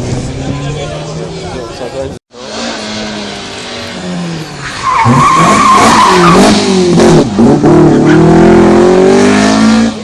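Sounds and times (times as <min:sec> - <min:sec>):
rally car engine revving: 0:02.3 - 0:10.0.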